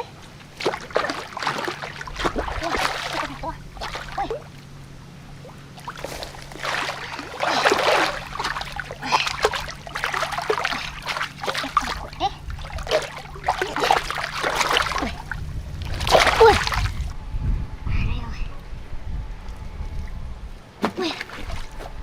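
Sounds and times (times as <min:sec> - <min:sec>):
water gurgling: 0:00.0 - 0:04.6, 0:05.4 - 0:17.1
water splashing and sloshing: 0:00.0 - 0:17.2, 0:19.9 - 0:22.0
steady low hum: 0:00.0 - 0:22.0.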